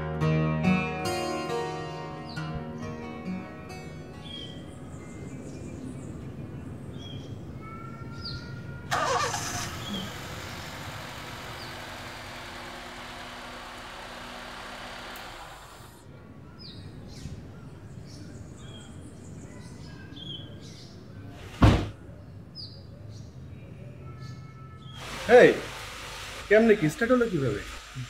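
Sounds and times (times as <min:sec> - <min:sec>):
faint birds chirping: 0:02.1 - 0:25.6
car engine starting and running: 0:08.9 - 0:16.0.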